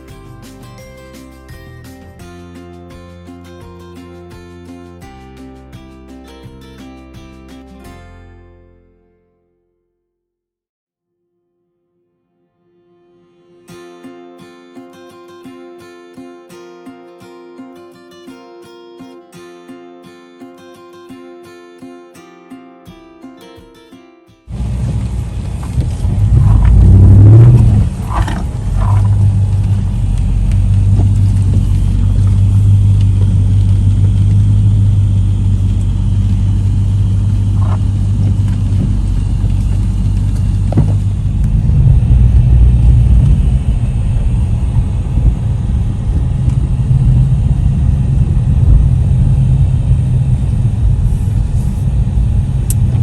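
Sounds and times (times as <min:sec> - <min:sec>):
car driving rumble: 0:24.5 - 0:53.0.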